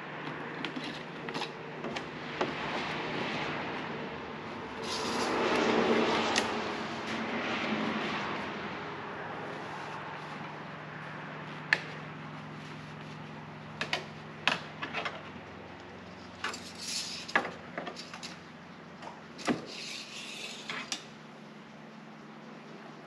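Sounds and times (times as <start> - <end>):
wiping rustles: 9.4 - 14.3.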